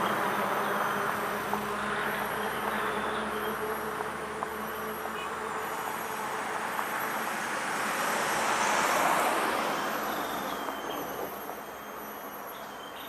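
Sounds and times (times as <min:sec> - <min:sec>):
vehicle passing: 0:00.0 - 0:11.4.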